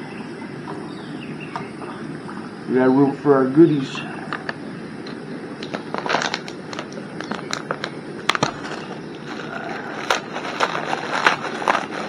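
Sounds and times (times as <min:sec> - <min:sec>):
steady low hiss: 0:00.0 - 0:12.0
plastic packet crinkling: 0:05.6 - 0:12.0.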